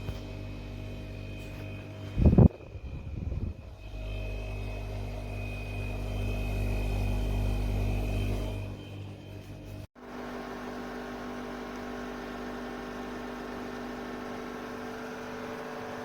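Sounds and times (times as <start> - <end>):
dehumidifier humming: 10.0 - 16.0.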